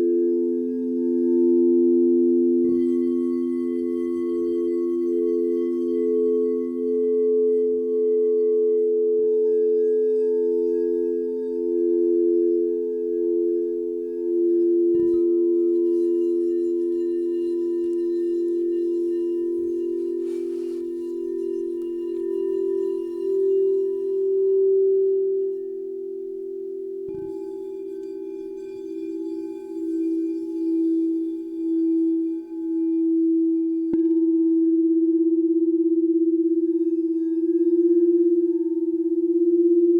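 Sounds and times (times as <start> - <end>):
crystal singing bowls ringing: 0.0 - 39.9
soft bowl strike: 0.0 - 39.9
singing bowl struck: 27.1 - 35.6.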